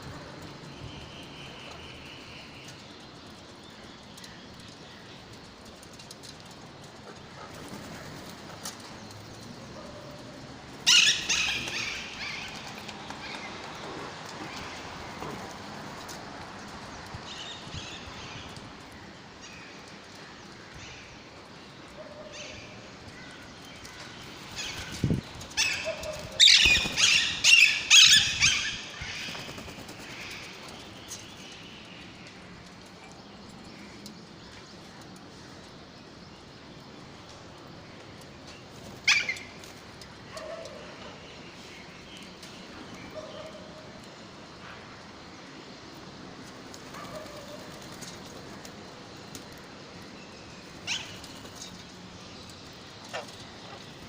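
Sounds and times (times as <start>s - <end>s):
parrot chicks calling: 10.8s - 12.7s, 24.6s - 30.4s.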